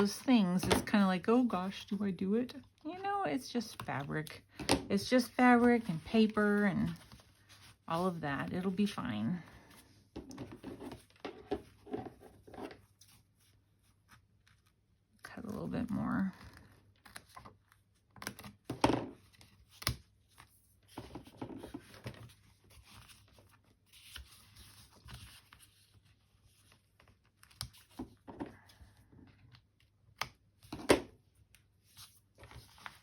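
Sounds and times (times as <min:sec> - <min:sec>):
fabric and paper rustling: 0:00.0 - 0:18.6, 0:19.2 - 0:29.8, 0:31.4 - 0:33.0.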